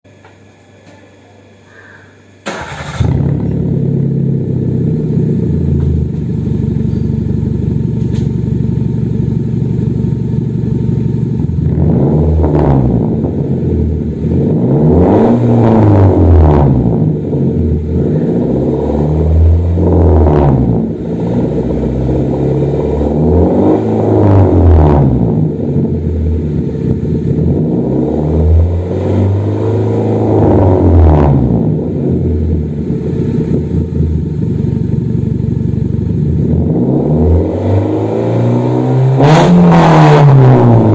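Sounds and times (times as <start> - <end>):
car engine idling and revving: 2.5 - 40.9.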